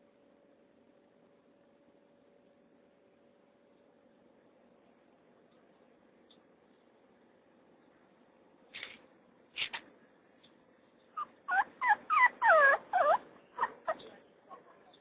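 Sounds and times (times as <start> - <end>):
puppy yelping: 11.2 - 14.7.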